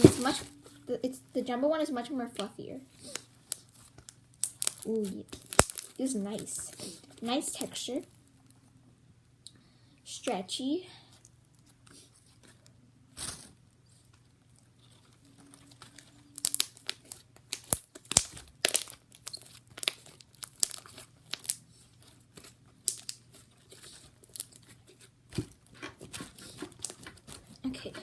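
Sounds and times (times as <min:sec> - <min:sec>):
slime crackling and popping: 0:02.4 - 0:07.9, 0:14.5 - 0:28.0.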